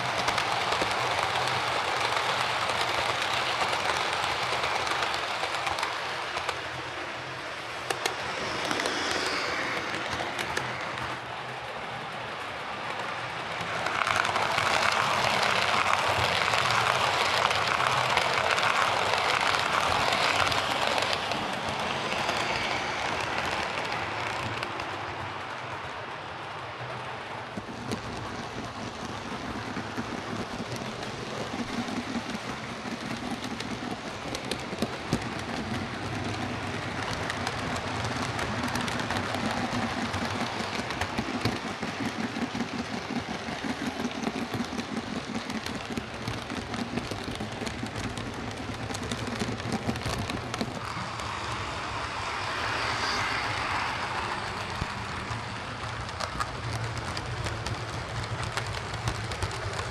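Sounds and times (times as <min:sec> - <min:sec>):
small clicks: 0:00.0 - 0:11.2
model train motor whirring: 0:00.0 - 0:59.9
wheels rattling on rail: 0:00.0 - 0:59.9.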